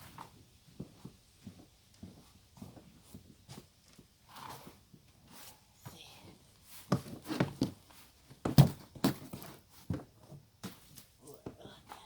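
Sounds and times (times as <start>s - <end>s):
digging through soil in a bucket: 4.2s - 5.7s.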